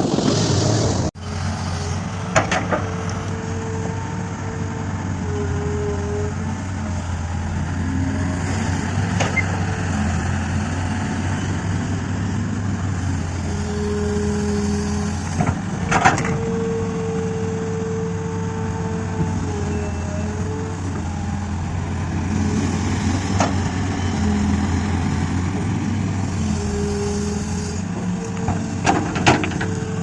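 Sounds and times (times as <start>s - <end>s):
excavator diesel engine running: 0.0s - 30.0s
hydraulics whining: 0.0s - 30.0s.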